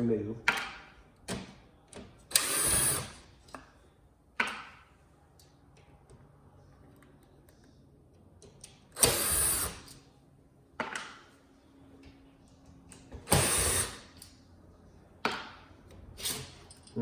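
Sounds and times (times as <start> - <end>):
screwdriver noisy bursts: 2.3 - 3.2, 9.0 - 9.9, 13.3 - 14.2.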